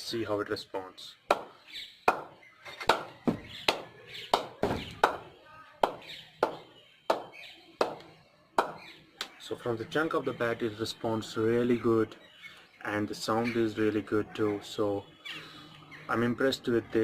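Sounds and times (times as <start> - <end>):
cricket ball knocking on bat: 1.3 - 1.5, 2.1 - 2.3, 2.9 - 8.8.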